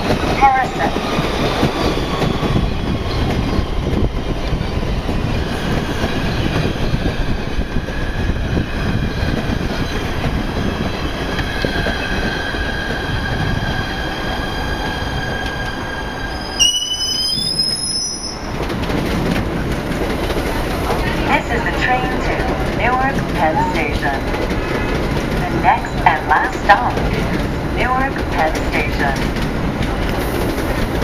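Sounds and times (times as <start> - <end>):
train wheels rumbling on rail: 0.0 - 31.0
wheel and brake squealing: 16.2 - 18.6.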